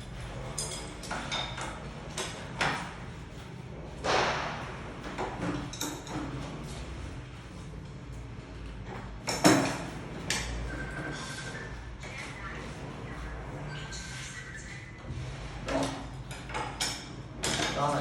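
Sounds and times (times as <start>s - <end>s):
tools knocking and clinking: 9.2s - 10.5s.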